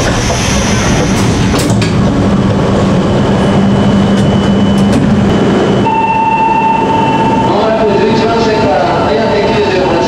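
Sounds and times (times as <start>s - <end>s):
train hum: 0.0s - 10.0s
train noise: 0.0s - 10.0s
steady high tone: 3.1s - 8.9s.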